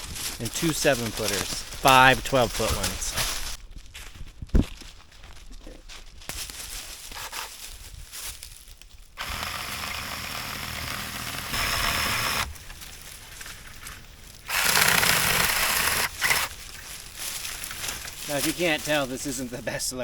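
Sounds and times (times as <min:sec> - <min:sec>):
electric chainsaw cutting wood: 0:09.2 - 0:12.8, 0:14.5 - 0:16.5
light crackling and rustling: 0:16.3 - 0:19.8.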